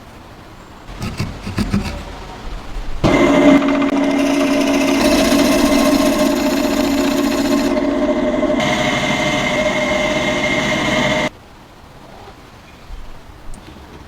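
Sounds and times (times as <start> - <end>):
small power tool whirring: 3.0 - 11.3.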